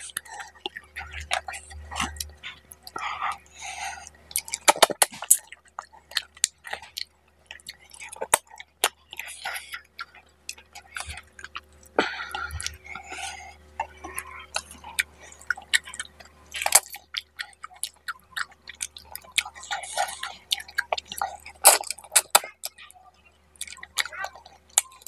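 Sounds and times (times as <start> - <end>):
wet chewing and lip smacking: 0.0 - 25.0.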